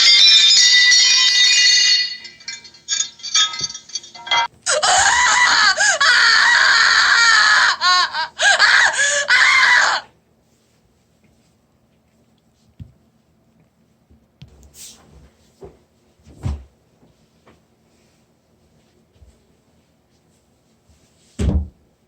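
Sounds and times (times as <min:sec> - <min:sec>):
ringing chime: 0:00.0 - 0:04.5
tinkling clicks: 0:00.0 - 0:04.5
high wavering voice-like wail: 0:04.7 - 0:10.1.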